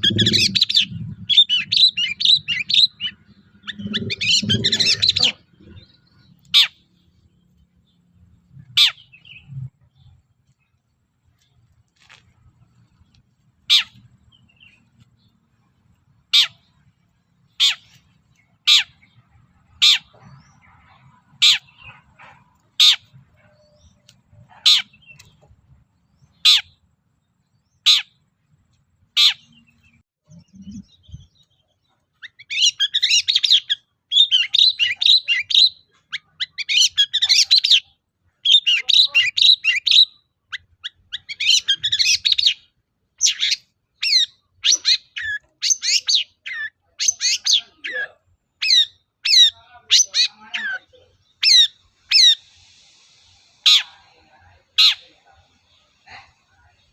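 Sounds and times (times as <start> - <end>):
shrike chattering song: 0.0 - 7.2, 32.2 - 52.6.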